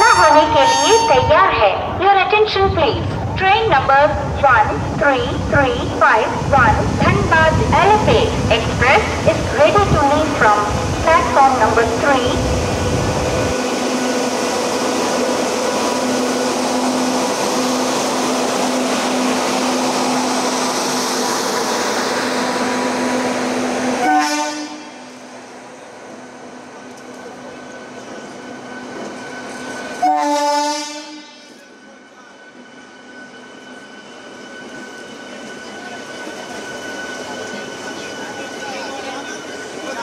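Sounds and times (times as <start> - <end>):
locomotive horn blast: 0.0 - 1.5, 24.0 - 25.2, 30.0 - 31.6
train rumbling on tracks: 0.0 - 40.0.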